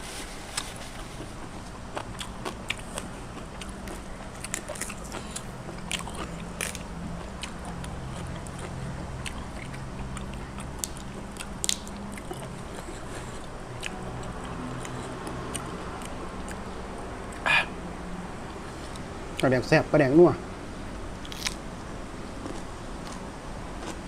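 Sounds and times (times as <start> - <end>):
chewing crisp leaves: 0.0 - 17.4, 21.1 - 21.6
steady low hum: 0.0 - 24.0.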